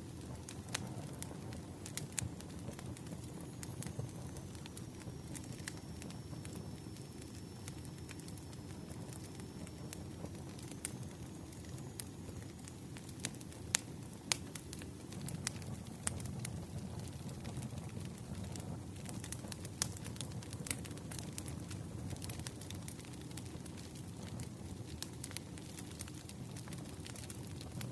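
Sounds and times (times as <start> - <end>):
wood fire crackling and popping: 0.0 - 27.9.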